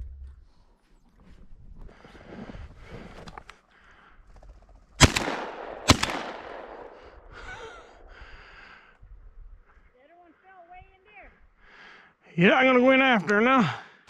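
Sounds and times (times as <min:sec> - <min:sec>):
gunshots with echo: 0:05.0 - 0:07.4.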